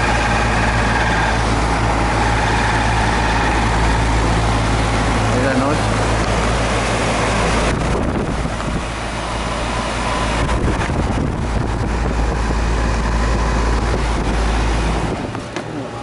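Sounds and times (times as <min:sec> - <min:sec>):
air conditioning unit humming: 0:00.0 - 0:16.0
wind buffeting microphone: 0:05.8 - 0:15.6.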